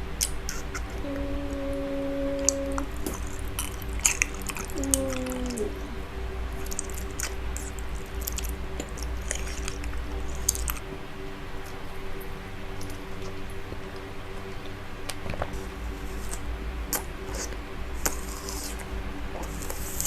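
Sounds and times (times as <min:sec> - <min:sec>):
faint steady hum: 0:00.0 - 0:20.0
short falling tone: 0:01.0 - 0:03.0.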